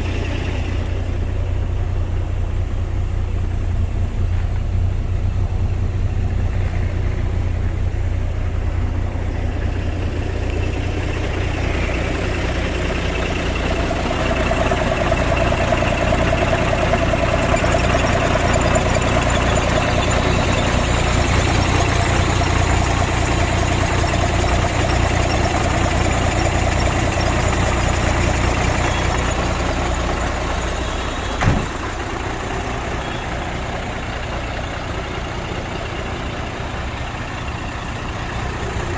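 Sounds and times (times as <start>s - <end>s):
truck diesel engine idling: 0.0s - 38.9s
sharp knock: 31.4s - 32.0s.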